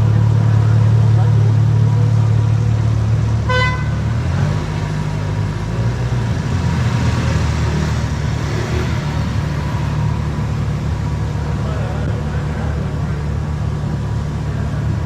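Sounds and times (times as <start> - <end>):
car driving rumble: 0.0 - 15.0
car horn toot: 3.5 - 4.0.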